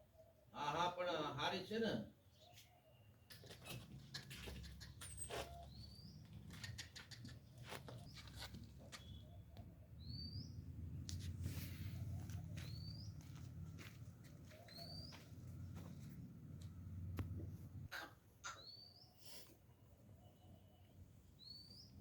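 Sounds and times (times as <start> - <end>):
rising bird chirps: 9.0 - 10.7, 12.0 - 13.2, 14.5 - 15.2, 18.4 - 19.3.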